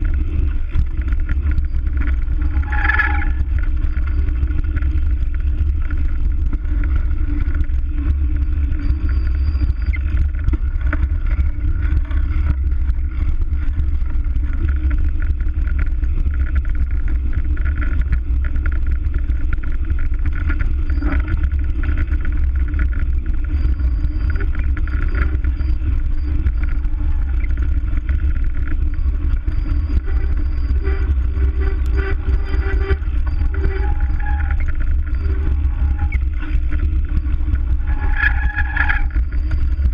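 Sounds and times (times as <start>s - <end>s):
bicycle knocks and rattles: 0.0s - 9.1s
wind rumble on microphone: 0.0s - 39.9s.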